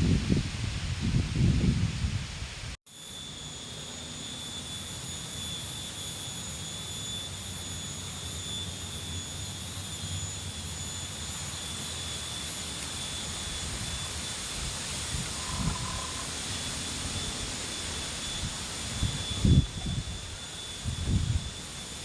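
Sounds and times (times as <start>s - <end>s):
strong wind through leaves: 0.0s - 2.8s, 10.9s - 22.0s.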